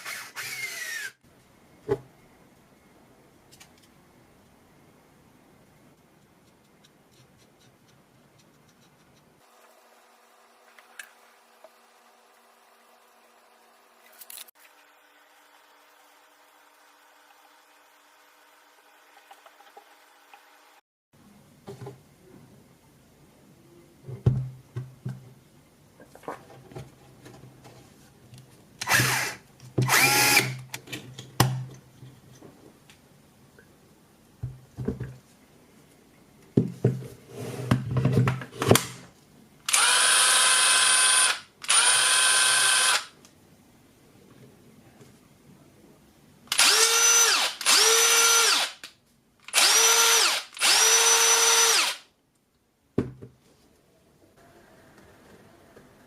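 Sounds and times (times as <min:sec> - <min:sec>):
screwdriver motor whirring: 0:00.0 - 0:01.2, 0:28.8 - 0:30.6, 0:39.7 - 0:43.1, 0:46.5 - 0:48.8, 0:49.5 - 0:52.0.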